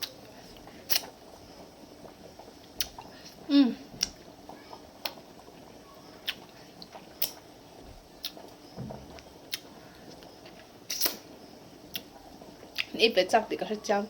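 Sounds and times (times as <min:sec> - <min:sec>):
person chewing food: 0:06.2 - 0:07.4, 0:08.2 - 0:11.2.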